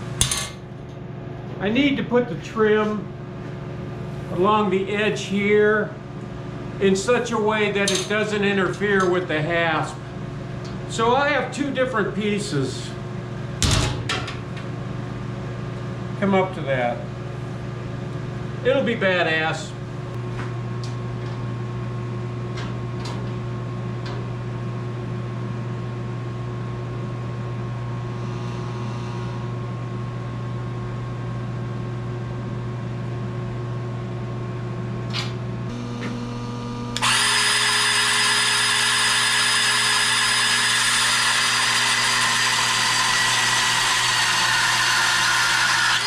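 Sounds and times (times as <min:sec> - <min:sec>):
machine hum: 0:00.0 - 0:46.0
power tool whining: 0:35.7 - 0:46.0.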